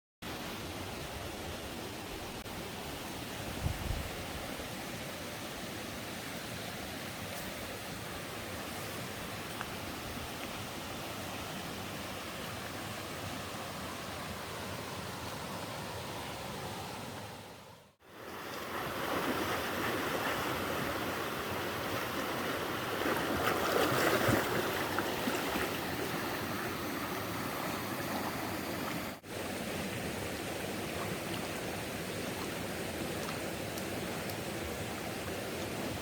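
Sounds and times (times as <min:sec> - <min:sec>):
stream rushing over rocks: 0:00.2 - 0:36.0.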